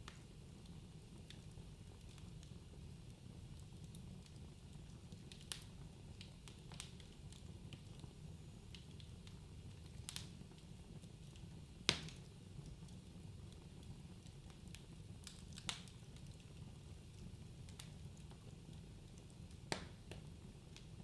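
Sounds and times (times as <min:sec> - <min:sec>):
fire pops and snaps: 0:00.0 - 0:21.0
fire rumbling: 0:00.0 - 0:21.0.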